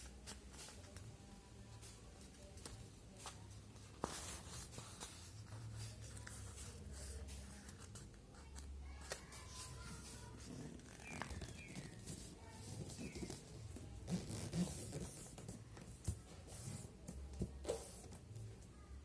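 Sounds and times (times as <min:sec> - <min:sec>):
paper rustling and creasing: 0:03.8 - 0:16.8.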